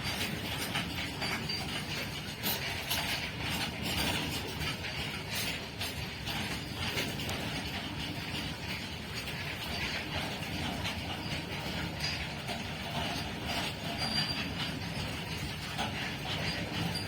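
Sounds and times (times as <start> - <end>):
wheel squeals: 0.0 - 5.6, 9.6 - 17.0
train wheels rumbling on rails: 0.0 - 17.0.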